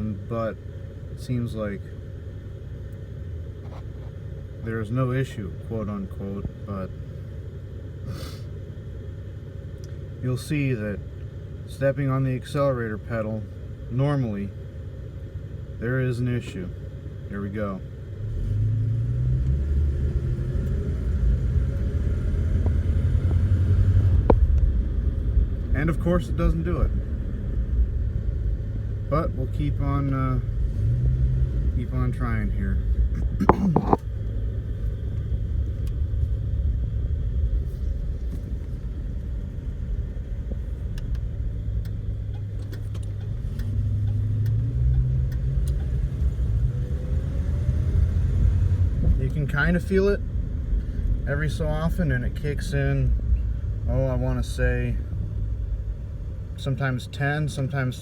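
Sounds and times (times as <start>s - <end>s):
car engine accelerating: 17.5s - 58.0s.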